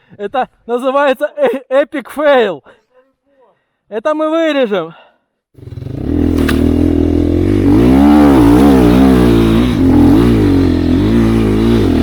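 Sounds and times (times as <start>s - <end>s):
dirt bike engine revving: 5.6s - 12.0s.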